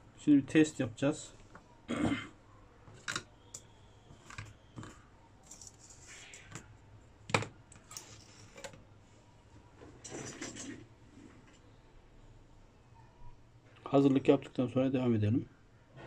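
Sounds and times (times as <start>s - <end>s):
small parts and tools clicking: 2.9s - 6.7s.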